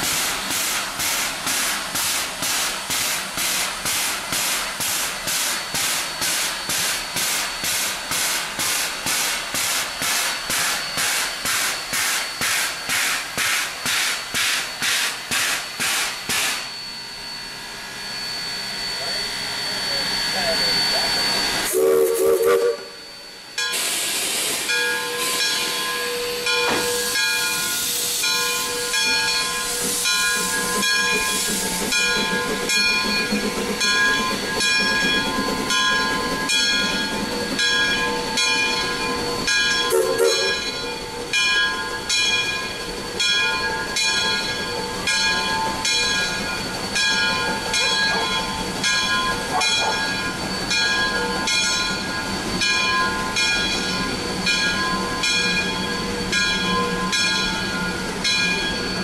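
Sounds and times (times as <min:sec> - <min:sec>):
hissing steam: 0:00.0 - 0:17.3, 0:18.0 - 0:40.9
steam locomotive exhaust chuffs: 0:00.0 - 0:59.0
steam locomotive whistle: 0:18.2 - 0:37.1, 0:39.2 - 0:40.9.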